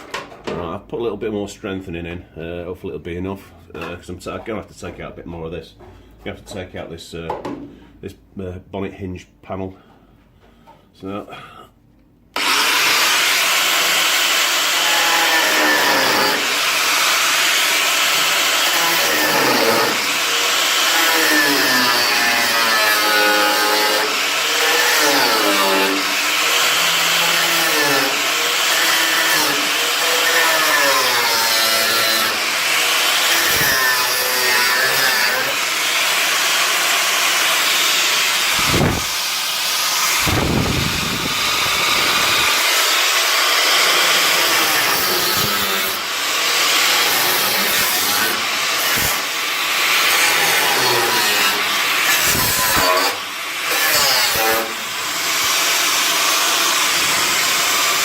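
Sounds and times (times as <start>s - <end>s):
power tool cutting steel: 12.4s - 58.0s.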